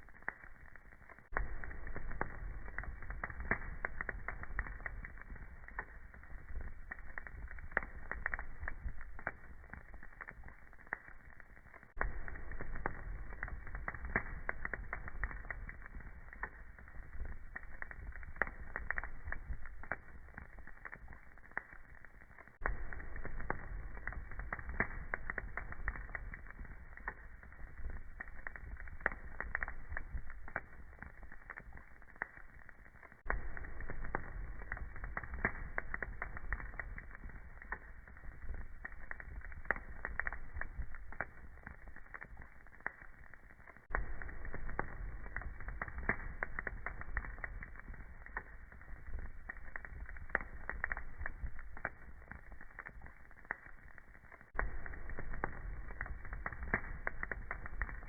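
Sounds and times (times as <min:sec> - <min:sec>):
fire popping and snapping: 0:00.0 - 0:58.0
low rumble of burning: 0:00.0 - 0:58.0.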